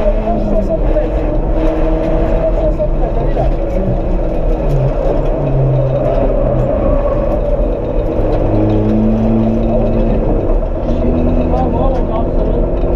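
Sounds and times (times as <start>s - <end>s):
car engine running hard: 0.0s - 12.9s
road and tyre rumble: 0.0s - 12.9s.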